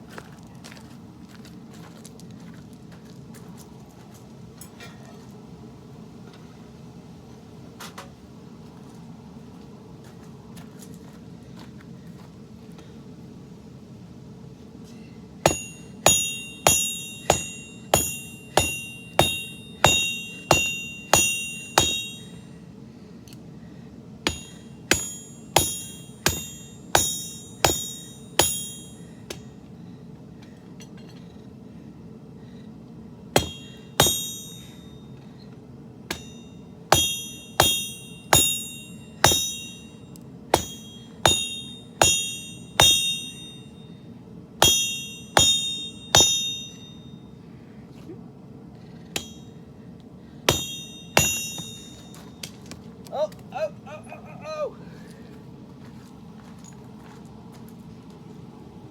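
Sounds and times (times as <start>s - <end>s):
hammer striking blade on anvil: 15.5s - 22.4s, 24.3s - 29.5s, 33.4s - 34.9s, 36.1s - 43.8s, 44.6s - 47.0s, 49.2s - 49.6s, 50.5s - 52.4s.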